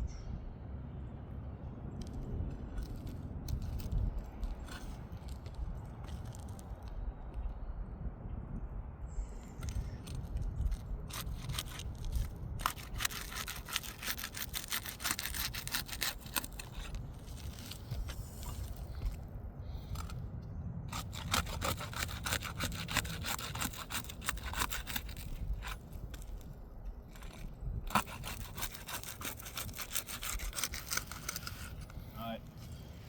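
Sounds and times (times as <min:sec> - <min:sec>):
low steady rumble: 0:00.0 - 0:23.2
pry bar scraping roof shingles: 0:09.6 - 0:19.2, 0:20.9 - 0:26.5, 0:27.1 - 0:33.0.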